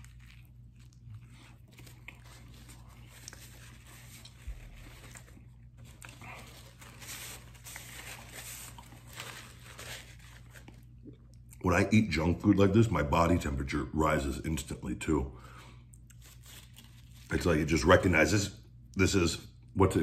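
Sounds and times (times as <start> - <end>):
man chewing food: 0.0 - 11.6.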